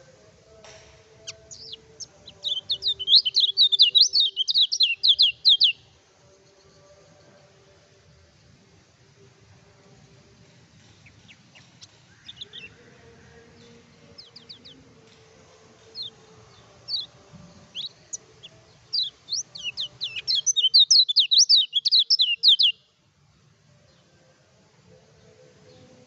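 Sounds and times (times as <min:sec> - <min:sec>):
bird chirping: 0:01.2 - 0:07.6, 0:10.7 - 0:23.0.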